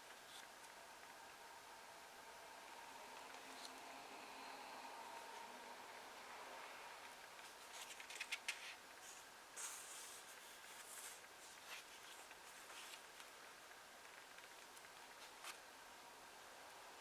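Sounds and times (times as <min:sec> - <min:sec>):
paper pages rustling: 0:07.4 - 0:13.4.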